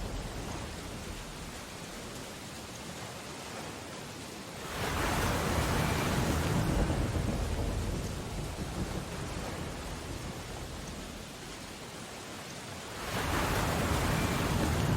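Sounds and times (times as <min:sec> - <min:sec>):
deep storm rumble: 0:05.4 - 0:11.5.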